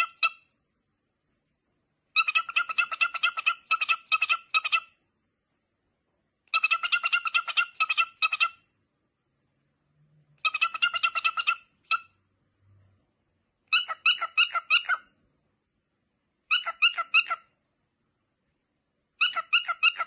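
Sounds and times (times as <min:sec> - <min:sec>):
cockatiel chirping: 0:00.0 - 0:00.5, 0:02.1 - 0:05.0, 0:06.5 - 0:08.7, 0:10.4 - 0:12.2, 0:13.7 - 0:15.1, 0:16.4 - 0:17.5, 0:19.2 - 0:20.0.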